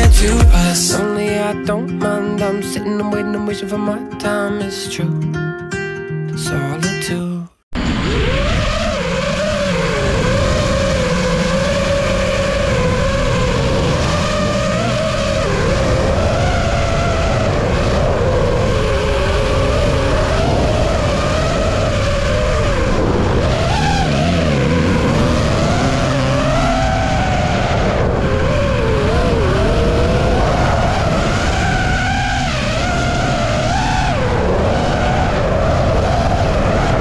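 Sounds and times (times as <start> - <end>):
drone propellers whining: 7.8 - 37.0.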